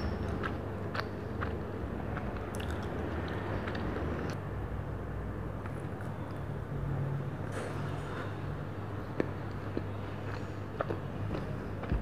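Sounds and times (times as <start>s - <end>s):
chewing soft donut: 0.0s - 4.4s, 9.0s - 12.0s.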